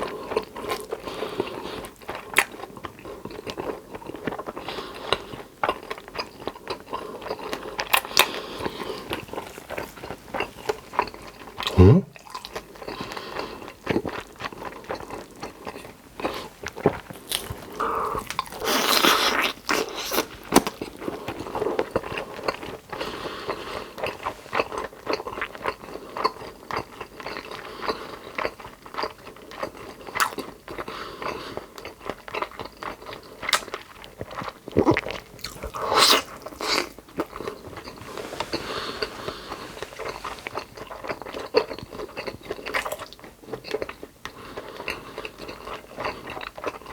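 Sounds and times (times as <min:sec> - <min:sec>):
person chewing crunchy food: 0:00.0 - 0:46.9
wet mouth sounds: 0:11.6 - 0:12.5, 0:30.2 - 0:30.4.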